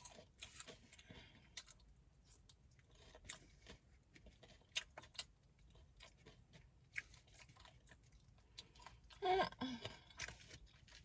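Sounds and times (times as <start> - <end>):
person chewing: 0.0 - 11.0.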